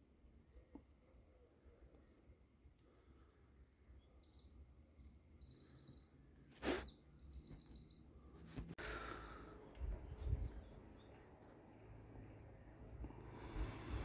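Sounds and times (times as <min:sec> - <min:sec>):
small bird chirping and trilling: 0:03.7 - 0:08.1.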